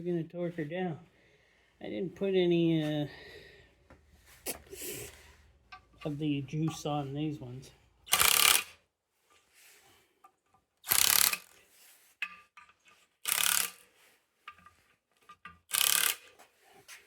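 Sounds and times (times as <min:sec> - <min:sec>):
faint metal clicks and knocks: 0:05.6 - 0:06.9, 0:14.4 - 0:15.7
ratchet wrench clicking: 0:08.1 - 0:08.8, 0:10.8 - 0:11.6, 0:13.2 - 0:13.9, 0:15.7 - 0:16.4.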